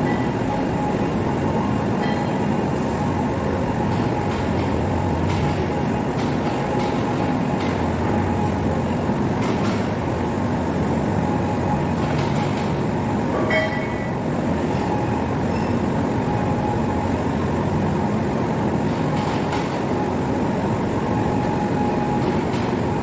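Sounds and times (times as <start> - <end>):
faint constant whine: 0.0 - 23.0
high metallic ring: 13.4 - 14.2.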